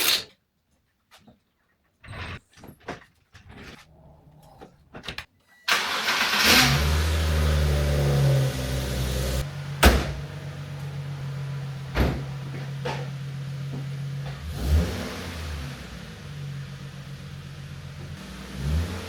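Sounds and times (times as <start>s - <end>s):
car engine starting and idling: 5.7s - 19.0s.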